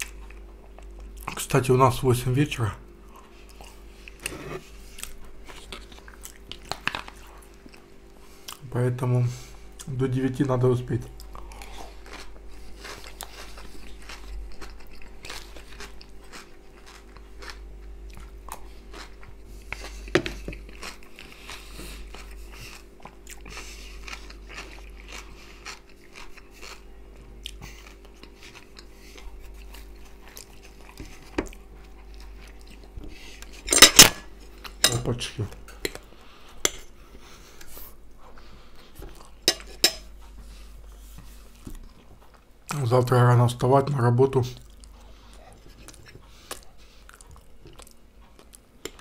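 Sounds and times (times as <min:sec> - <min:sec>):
chewing and biting food: 0:00.0 - 0:01.4, 0:03.0 - 0:08.6, 0:11.1 - 0:34.8, 0:44.5 - 0:49.0
faint steady hum: 0:00.0 - 0:49.0
cutlery clicking on plate: 0:39.5 - 0:40.1.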